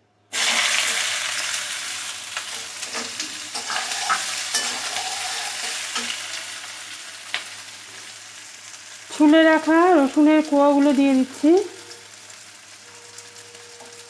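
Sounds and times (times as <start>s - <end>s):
onion sizzling in hot oil: 0.3s - 14.0s
spatula scraping a pan: 2.4s - 6.7s.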